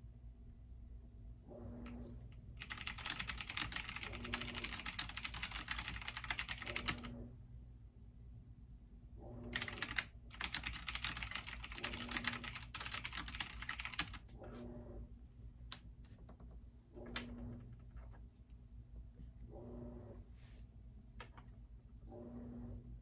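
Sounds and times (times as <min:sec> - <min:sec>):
washing machine running: 0:01.5 - 0:07.3, 0:09.2 - 0:15.2, 0:19.5 - 0:20.3
computer keyboard typing: 0:02.6 - 0:07.1, 0:09.6 - 0:14.3.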